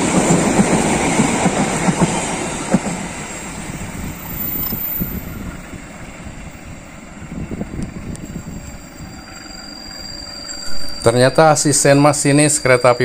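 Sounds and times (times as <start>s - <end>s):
train wheels knocking on rails: 0.0s - 4.2s.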